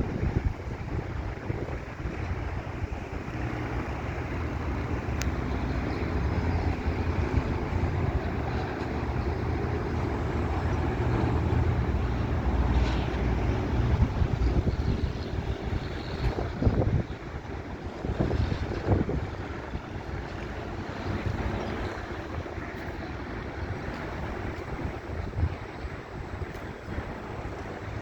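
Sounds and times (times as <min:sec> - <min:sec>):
jet engine rumble: 0:00.0 - 0:28.0.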